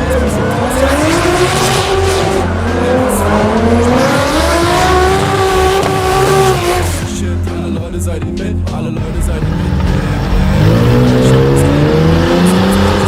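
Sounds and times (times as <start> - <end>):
car engine accelerating hard: 0.0 - 7.3, 9.1 - 13.0.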